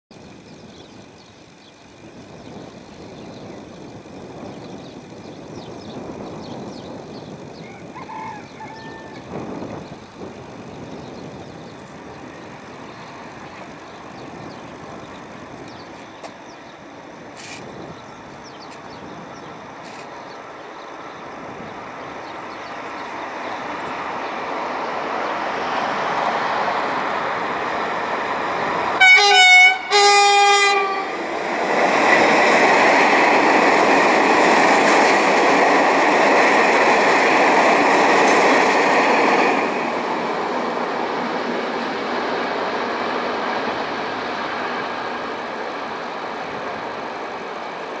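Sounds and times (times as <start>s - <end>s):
locomotive approaching: 0.1s - 48.0s
train horn blasts: 29.0s - 31.2s.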